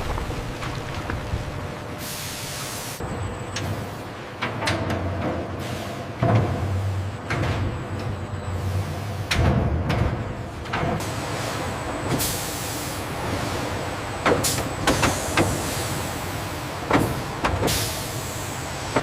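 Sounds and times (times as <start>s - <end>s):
machinery hum: 0.0s - 19.0s
hiss: 17.6s - 19.0s.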